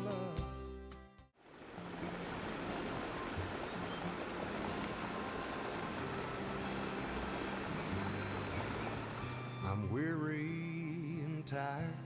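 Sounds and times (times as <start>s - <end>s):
river water rushing: 1.4s - 9.6s.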